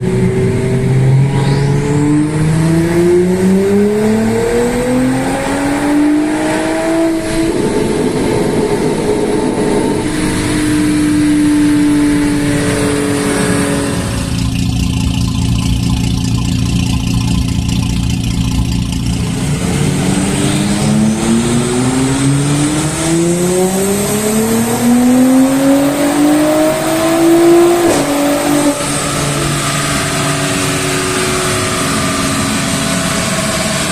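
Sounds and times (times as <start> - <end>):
car engine accelerating hard: 0.0 - 33.9
faint turbo whine: 0.0 - 33.9.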